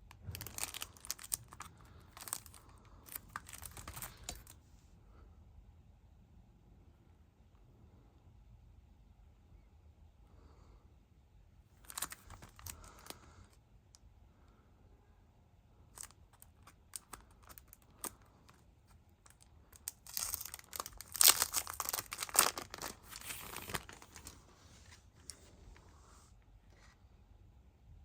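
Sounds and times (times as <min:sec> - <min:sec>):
packaging tearing and crinkling: 0:00.3 - 0:04.6, 0:11.8 - 0:13.1, 0:19.3 - 0:24.4.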